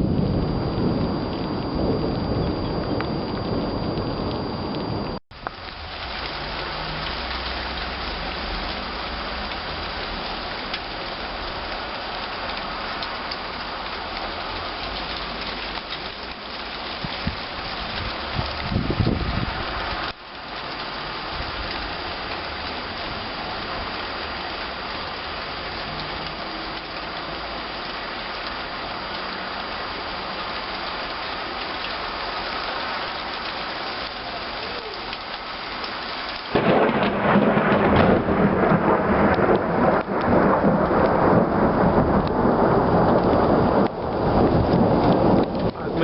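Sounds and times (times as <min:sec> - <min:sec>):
thunder rumbling: 0:00.0 - 0:20.1, 0:36.3 - 0:46.0
rain falling: 0:00.0 - 0:46.0.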